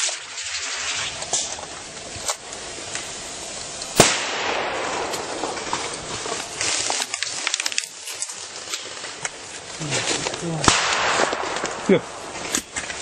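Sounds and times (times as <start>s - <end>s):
airsoft single shots: 4.0s - 5.4s, 10.6s - 12.3s
loud sharp crack: 4.0s - 5.9s, 10.5s - 13.0s.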